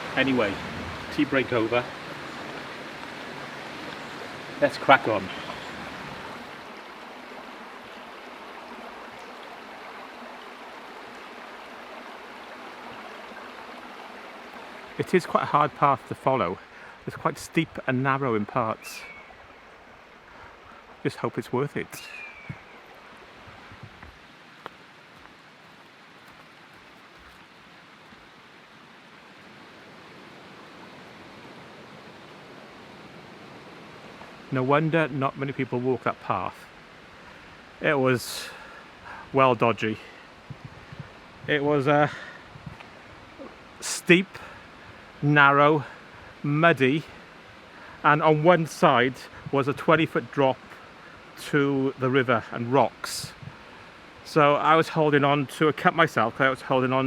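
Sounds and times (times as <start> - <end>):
river flowing over rocks: 0.0 - 57.0.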